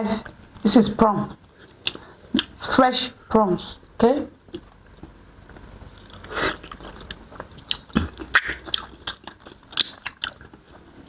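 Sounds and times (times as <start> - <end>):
person chewing food: 1.4 - 2.6, 4.5 - 11.0.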